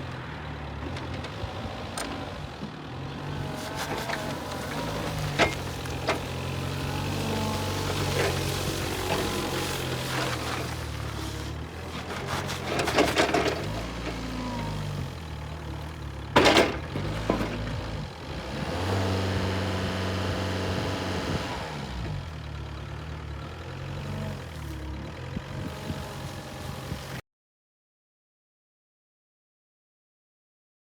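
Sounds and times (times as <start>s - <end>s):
forklift engine revving: 0.1s - 27.2s.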